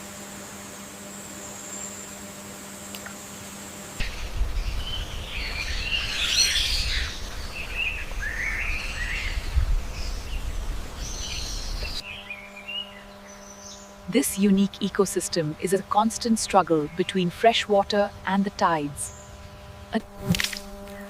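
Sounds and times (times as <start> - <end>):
faint steady hum: 0.0 - 21.0
birds chirping and twittering: 4.0 - 19.9.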